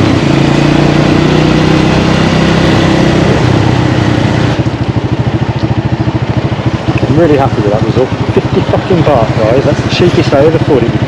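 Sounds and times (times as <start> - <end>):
small motorbike engine idling: 3.4 - 11.0.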